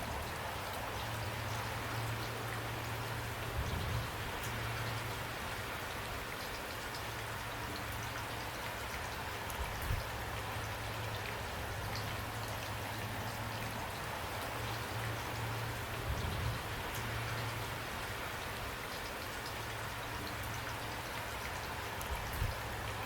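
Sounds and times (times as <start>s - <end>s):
raindrops ticking on a surface: 0.0s - 23.0s.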